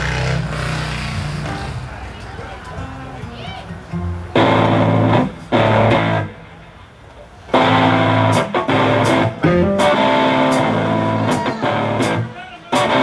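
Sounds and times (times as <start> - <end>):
guitar chords: 0.0 - 6.9, 7.5 - 13.0
live band playing: 4.3 - 6.4, 7.5 - 13.0.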